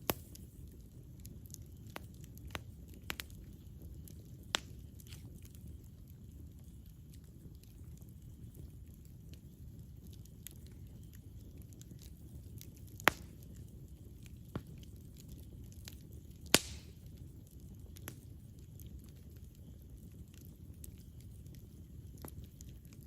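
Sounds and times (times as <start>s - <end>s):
burning wood popping: 0.0s - 23.0s
campfire flame rumble and crackle: 0.0s - 23.0s.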